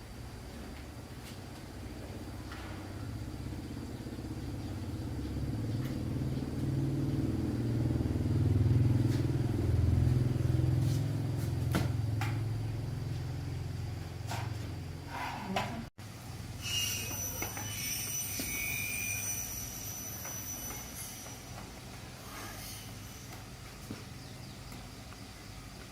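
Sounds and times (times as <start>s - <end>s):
engine humming: 0.0s - 16.6s.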